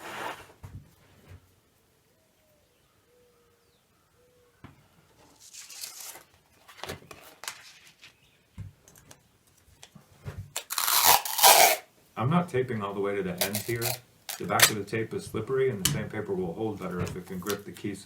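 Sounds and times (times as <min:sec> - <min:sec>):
scraping rustle: 0:00.0 - 0:01.3, 0:05.2 - 0:08.3, 0:13.4 - 0:14.6.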